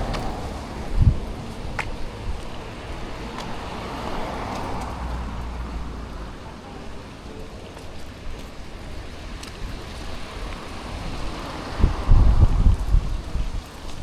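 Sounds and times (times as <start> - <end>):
car passing: 0.0 - 14.0
road traffic rumble: 0.0 - 14.0.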